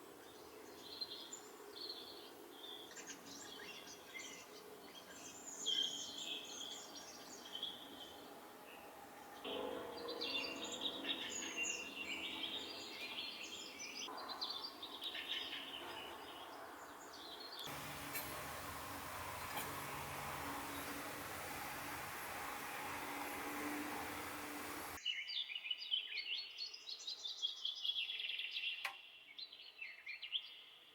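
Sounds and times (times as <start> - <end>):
birds chirping: 0.6 - 25.0
steady hiss: 17.6 - 25.0.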